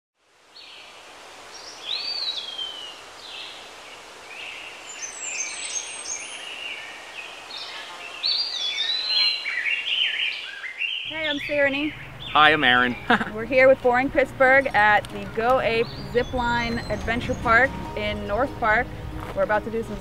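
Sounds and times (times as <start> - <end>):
steady outdoor hiss: 0.2 - 20.0
songbirds singing and chirping: 0.5 - 20.0.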